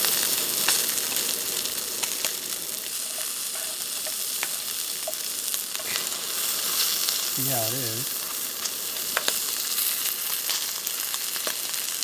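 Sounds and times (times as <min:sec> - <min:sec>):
food sizzling on camp stove: 0:00.0 - 0:12.0.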